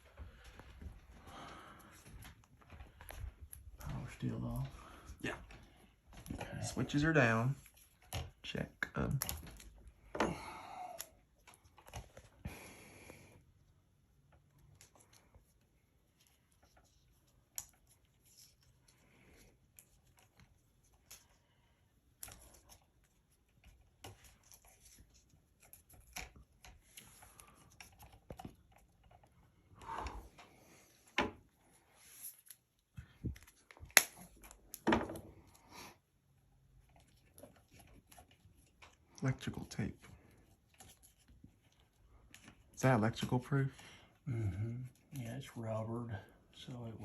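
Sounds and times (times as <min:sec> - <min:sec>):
hands handling wiring and tools: 0:14.2 - 0:29.8.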